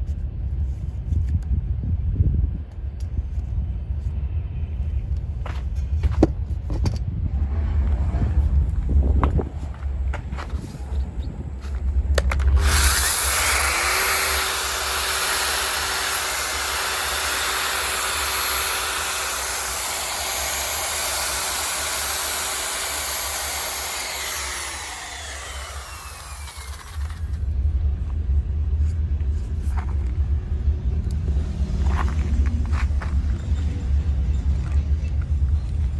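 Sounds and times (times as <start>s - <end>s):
low rumble: 0.0s - 13.7s, 25.0s - 35.9s.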